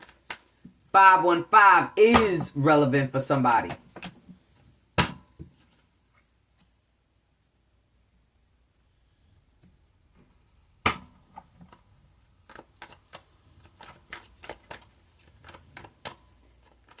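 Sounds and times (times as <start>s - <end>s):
cards being shuffled: 0.0s - 0.9s, 11.2s - 17.0s.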